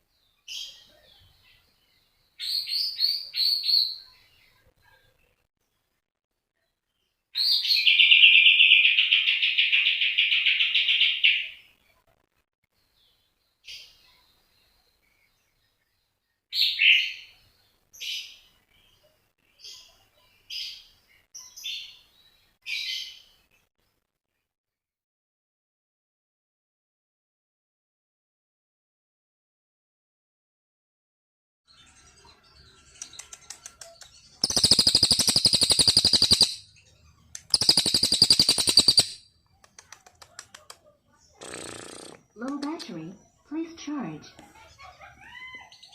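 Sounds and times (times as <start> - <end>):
songbird chirping: 0.0 - 6.0, 6.6 - 24.1, 31.7 - 45.9
songbird trills: 31.7 - 40.0
short bird chips: 32.9 - 43.0.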